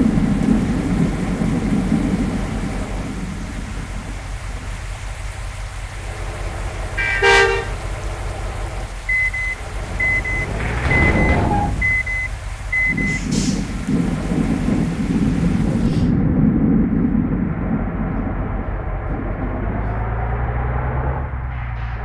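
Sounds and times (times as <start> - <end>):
engines rumbling: 0.0 - 22.0
vehicle horn: 6.9 - 8.1, 10.5 - 12.2
short high double beeps: 9.2 - 13.2.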